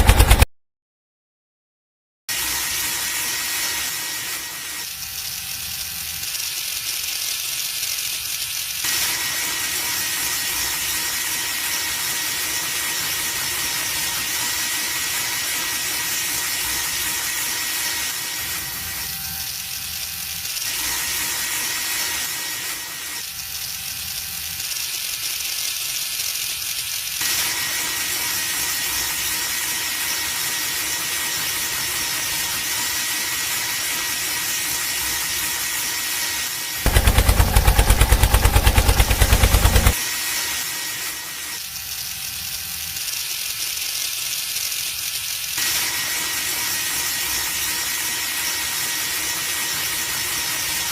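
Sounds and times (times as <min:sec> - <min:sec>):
small motor high whine: 0:02.3 - 0:07.4, 0:08.8 - 0:44.8, 0:45.5 - 0:50.9
hissing rattle: 0:05.2 - 0:08.9, 0:23.3 - 0:27.6, 0:36.8 - 0:45.6.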